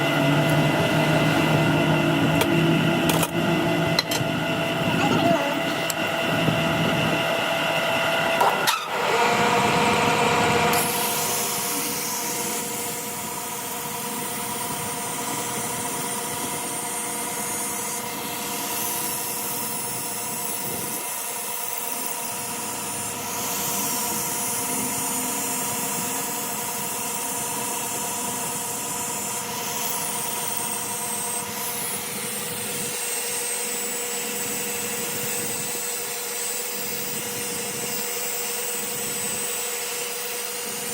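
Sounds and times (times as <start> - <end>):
workshop machine humming: 0.0 - 40.9.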